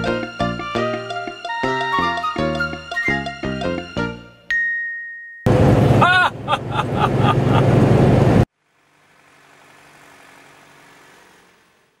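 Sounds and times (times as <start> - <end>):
truck diesel engine drone: 5.5 - 12.0.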